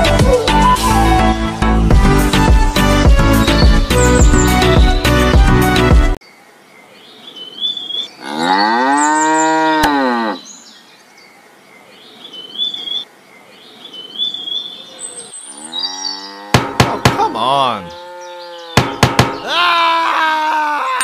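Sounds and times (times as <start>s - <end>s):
music: 0.0s - 6.2s
cow mooing: 8.2s - 10.4s, 15.5s - 16.7s, 17.9s - 18.9s.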